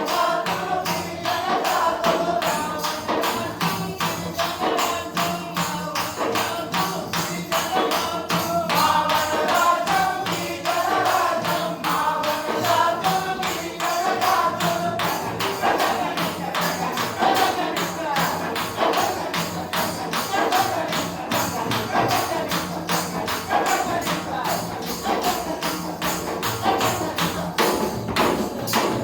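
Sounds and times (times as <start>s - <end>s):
hand percussion beats: 0.0s - 29.0s.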